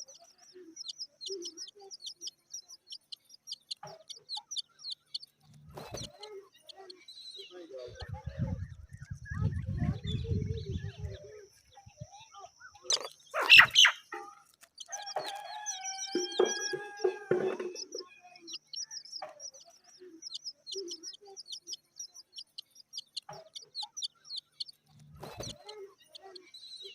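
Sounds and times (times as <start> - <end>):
rooster crowing: 14.9 - 17.8.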